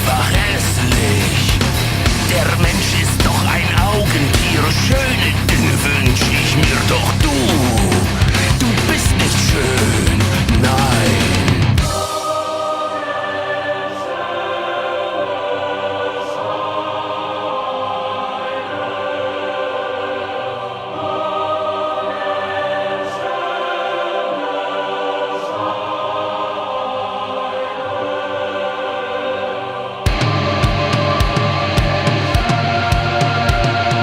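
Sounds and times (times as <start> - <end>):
slow choir-like chords: 0.0 - 34.0.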